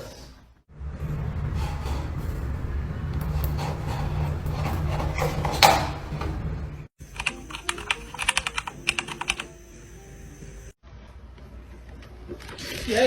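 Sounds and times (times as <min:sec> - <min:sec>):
low rumble: 0:00.7 - 0:06.9.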